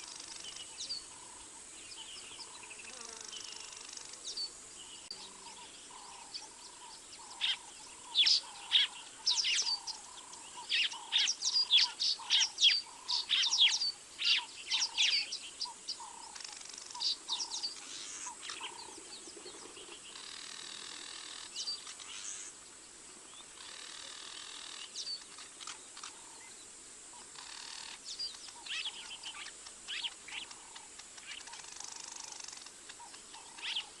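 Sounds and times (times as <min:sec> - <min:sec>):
birds chirping and whistling: 0:04.0 - 0:22.5, 0:27.4 - 0:30.6, 0:31.2 - 0:34.0.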